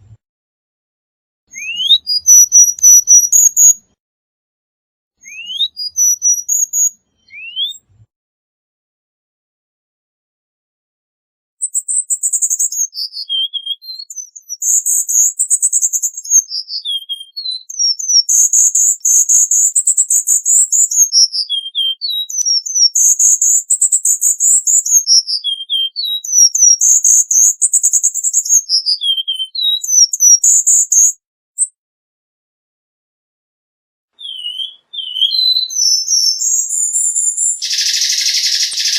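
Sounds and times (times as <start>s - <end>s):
bird singing trills: 1.6s - 3.8s, 5.2s - 7.8s, 11.6s - 31.7s, 34.2s - 38.9s.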